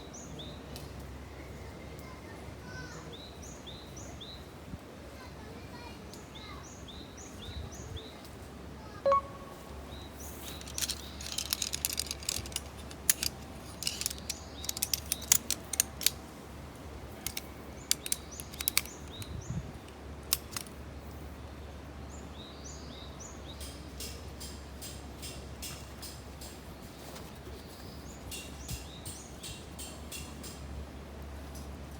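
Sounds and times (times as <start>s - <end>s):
birds chirping: 9.1s - 16.2s, 17.1s - 20.7s
sharp clicks and crackles: 10.4s - 16.2s, 17.2s - 20.8s.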